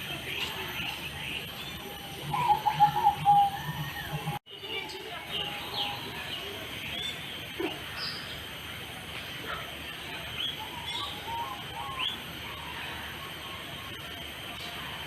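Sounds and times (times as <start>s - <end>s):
birds chirping and whistling: 0.8s - 4.4s, 10.4s - 13.8s.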